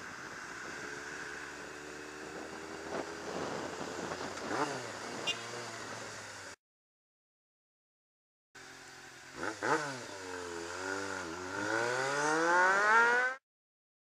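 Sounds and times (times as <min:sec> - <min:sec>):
motorcycle engine running: 0:00.0 - 0:06.6
wind noise on microphone: 0:02.2 - 0:05.4.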